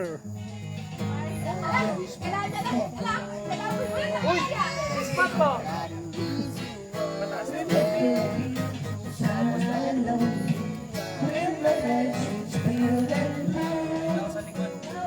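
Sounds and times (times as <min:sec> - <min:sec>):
guitar accompaniment: 0:00.0 - 0:15.0
person singing: 0:01.4 - 0:15.0.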